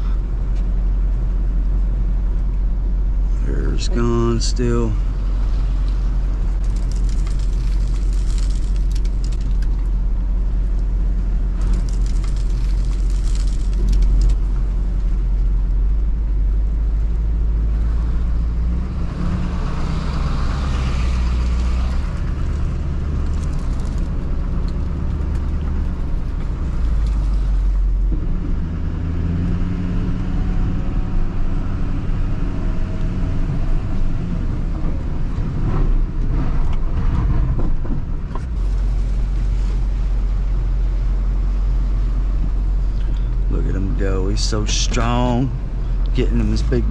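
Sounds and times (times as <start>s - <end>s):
truck engine running: 0.0s - 18.5s, 20.1s - 28.2s, 38.5s - 46.9s.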